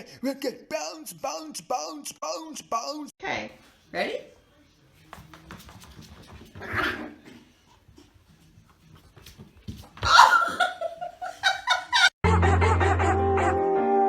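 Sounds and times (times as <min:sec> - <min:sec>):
person laughing: 0:10.1 - 0:12.8
music: 0:12.2 - 0:14.0.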